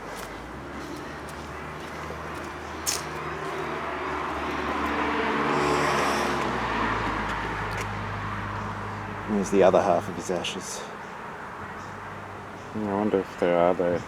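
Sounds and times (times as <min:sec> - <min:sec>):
car passing by: 0:00.6 - 0:10.9.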